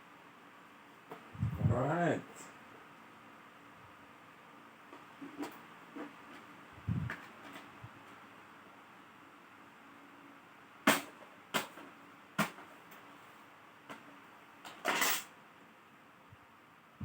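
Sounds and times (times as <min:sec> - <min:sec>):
clicks and knocks of laptop parts: 0:10.9 - 0:13.0.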